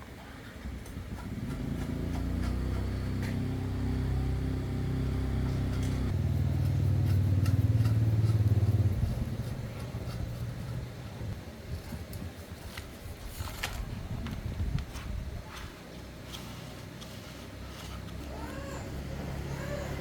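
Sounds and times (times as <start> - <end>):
engine running: 0.6 - 11.4, 16.0 - 20.0.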